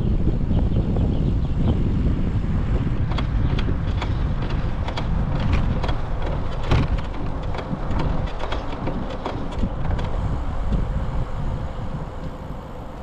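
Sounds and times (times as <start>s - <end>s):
wind rushing over microphone: 0.0s - 13.0s
sharp clicks and rattles: 3.0s - 10.2s.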